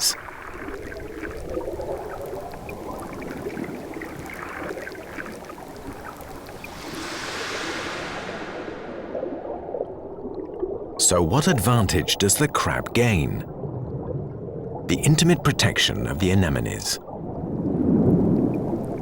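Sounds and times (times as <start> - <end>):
faint crackles: 0.0 - 9.8
underwater watery rush: 0.0 - 19.0.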